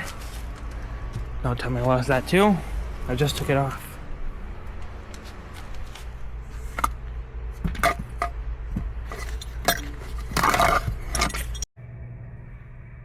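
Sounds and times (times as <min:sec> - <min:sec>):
steady low hum: 0:05.7 - 0:13.0
small hard parts clicking and clinking: 0:09.0 - 0:11.7.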